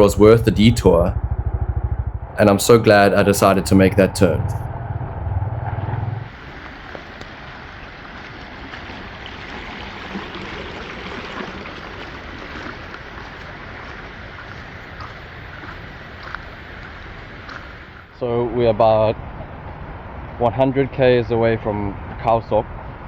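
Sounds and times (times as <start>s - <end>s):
rushing water: 6.2s - 18.1s.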